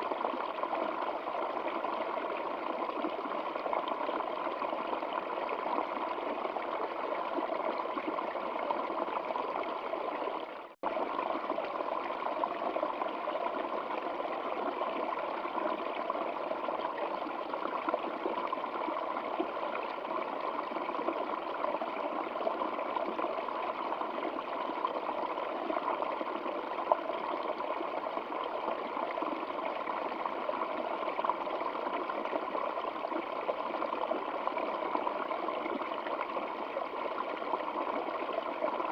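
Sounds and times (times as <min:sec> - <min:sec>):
stream water trickling: 0:00.0 - 0:38.9.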